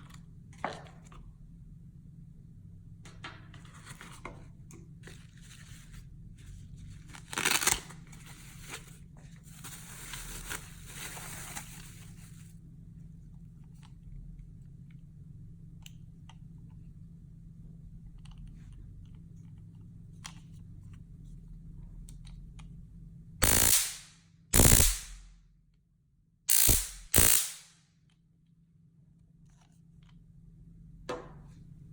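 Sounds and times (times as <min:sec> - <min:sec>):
stun gun electric arc: 0:23.4 - 0:25.3, 0:26.5 - 0:27.8
low hum: 0:26.5 - 0:27.6.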